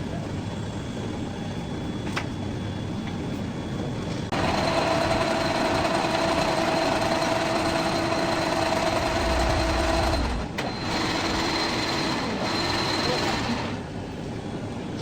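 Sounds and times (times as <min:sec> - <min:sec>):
metal lathe machining: 0:04.3 - 0:14.0.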